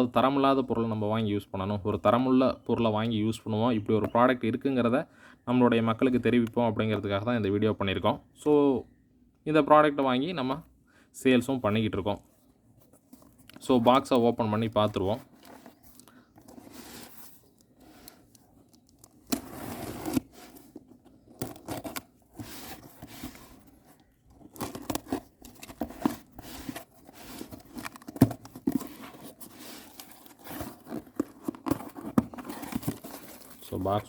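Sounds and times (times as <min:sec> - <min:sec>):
cardboard tearing and rustling: 0:15.2 - 0:33.9.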